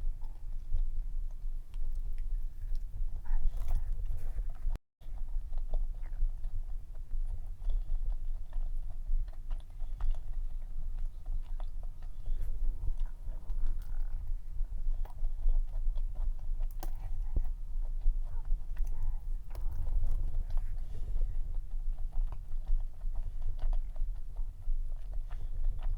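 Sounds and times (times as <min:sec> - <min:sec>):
close chewing: 0:00.0 - 0:25.9
steady low hum: 0:00.0 - 0:25.9.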